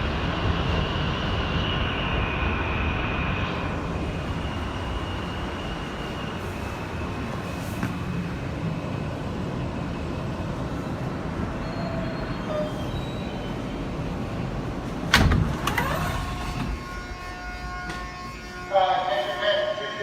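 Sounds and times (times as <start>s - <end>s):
train rumble: 0.0s - 20.0s
train motors whining: 15.0s - 18.9s.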